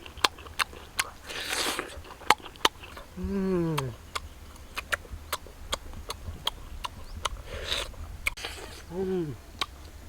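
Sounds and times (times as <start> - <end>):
person chewing food: 0.0 - 10.0
falling hum or grunt: 3.2 - 4.0, 8.4 - 9.4
breathy rush: 7.4 - 9.4.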